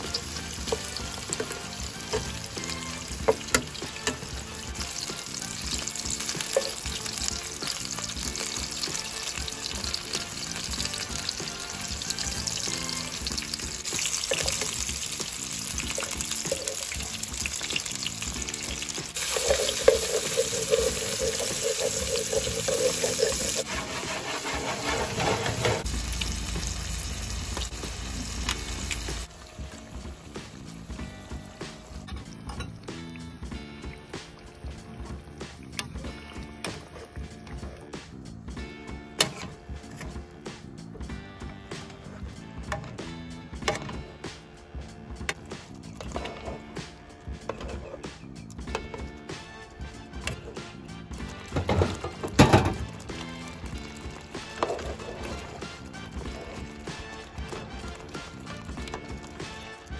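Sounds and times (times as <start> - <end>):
meatballs sizzling in oil: 0.0 - 23.7, 25.8 - 32.0, 49.3 - 59.9.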